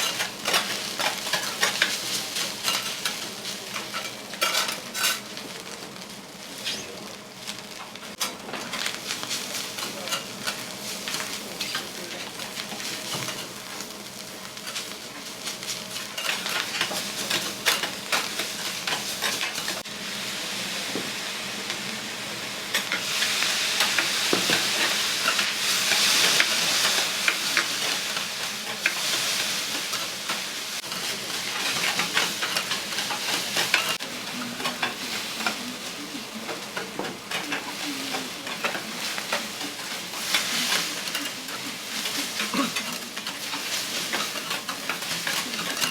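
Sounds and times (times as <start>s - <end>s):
food sizzling on griddle: 0.0s - 45.9s
metal spatulas scraping griddle: 3.9s - 5.2s, 9.8s - 12.0s, 37.3s - 45.9s.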